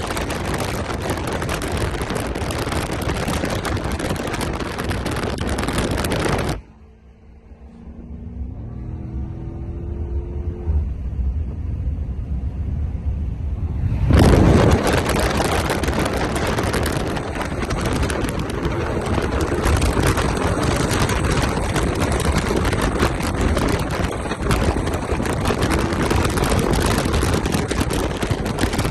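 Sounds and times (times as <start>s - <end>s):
rough crackling noise: 0.0s - 6.7s, 13.5s - 28.9s
car engine noise: 0.0s - 28.9s.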